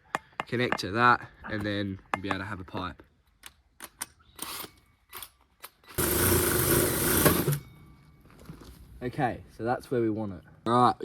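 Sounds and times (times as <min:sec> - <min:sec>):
drill cutting sheet metal: 0:06.0 - 0:07.6.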